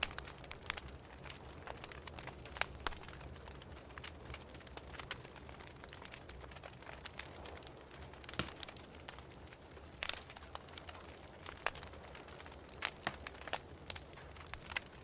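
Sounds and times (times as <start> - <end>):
wood fire crackling and hissing: 0.0 - 15.0
sharp pops of fire: 7.9 - 14.9.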